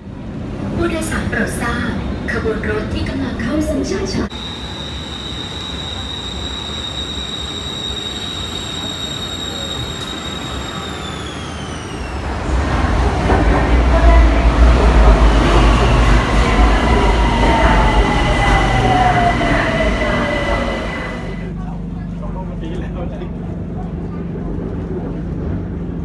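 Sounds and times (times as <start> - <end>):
train running rumble: 4.2 - 26.0
electric train motor whine: 4.3 - 12.5, 14.6 - 21.5.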